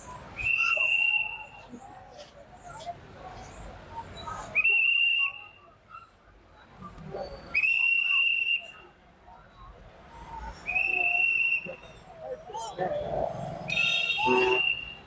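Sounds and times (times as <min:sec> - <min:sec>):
shrill whistle blasts: 0:13.7 - 0:15.0.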